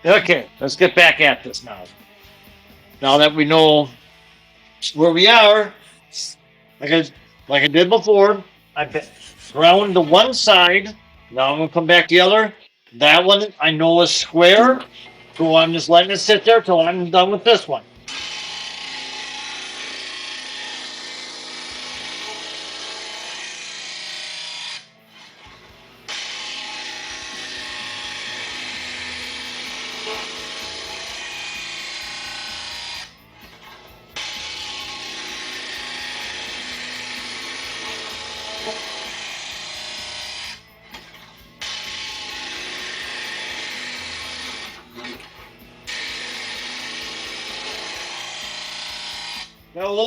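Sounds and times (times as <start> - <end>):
grinder grinding steel blade: 8.9 - 11.0, 17.6 - 50.0.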